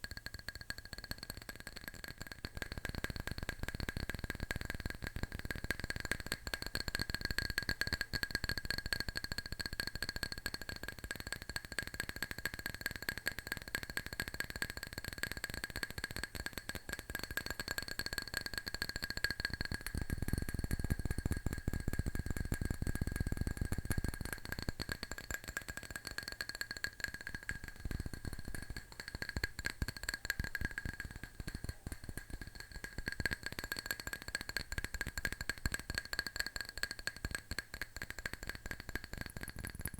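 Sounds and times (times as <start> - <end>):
fingernails tapping hard object: 16.4 - 39.9.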